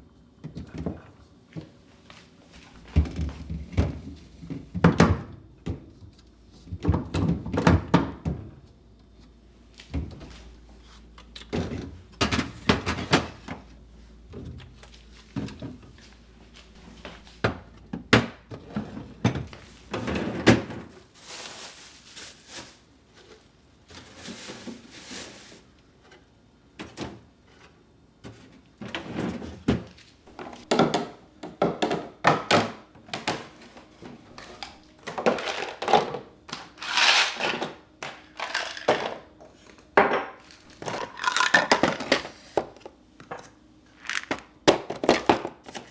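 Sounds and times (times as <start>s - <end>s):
objects knocking and clattering: 29.6s - 45.9s.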